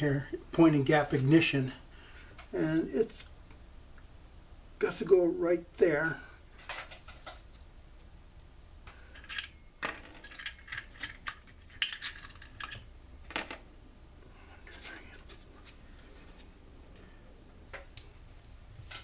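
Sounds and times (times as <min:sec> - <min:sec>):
small metal parts clinking: 0:09.1 - 0:13.6.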